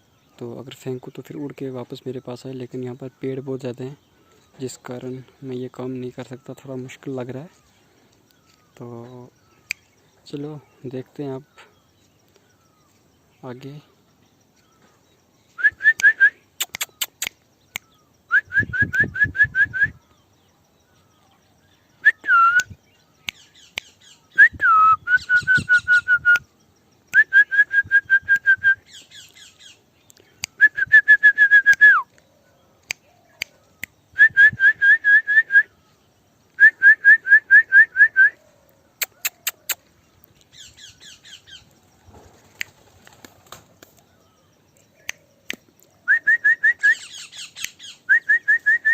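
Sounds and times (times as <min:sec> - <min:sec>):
sharp clicks: 0:16.0 - 0:18.0, 0:31.7 - 0:34.0, 0:39.0 - 0:40.6, 0:42.4 - 0:44.1, 0:44.8 - 0:45.9
sliding whistles: 0:18.4 - 0:20.0, 0:22.0 - 0:22.7, 0:24.4 - 0:26.4, 0:30.6 - 0:32.1, 0:48.1 - 0:48.9.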